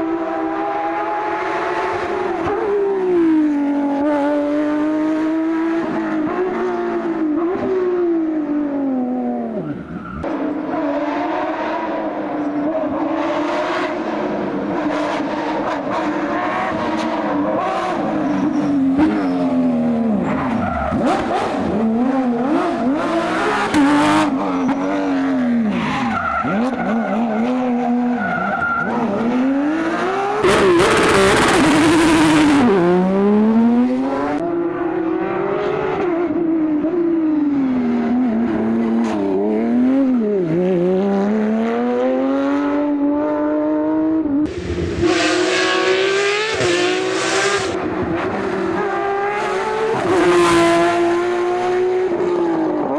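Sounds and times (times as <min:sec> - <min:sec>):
sports car engine accelerating: 0:28.9 - 0:52.9.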